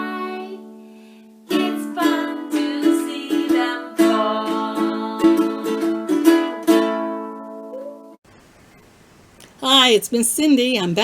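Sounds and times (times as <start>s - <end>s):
ukulele strumming chords: 0.0s - 0.7s, 1.5s - 8.2s.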